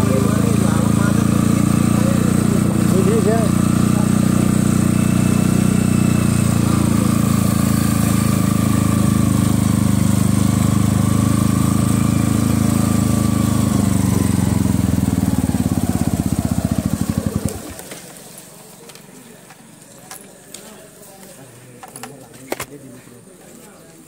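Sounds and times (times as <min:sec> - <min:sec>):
motorcycle engine at low revs: 0:00.0 - 0:18.2.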